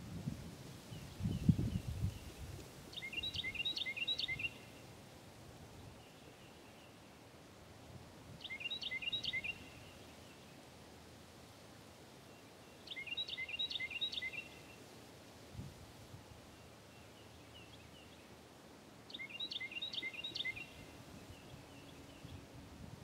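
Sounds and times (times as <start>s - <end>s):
songbird singing high notes: 3.0s - 4.7s, 8.4s - 9.8s, 12.9s - 14.6s, 19.1s - 20.9s.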